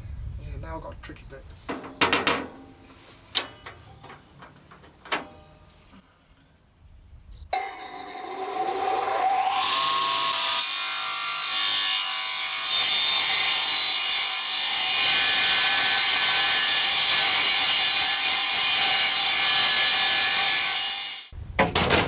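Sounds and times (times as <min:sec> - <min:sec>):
power saw cutting metal: 0:07.6 - 0:21.3.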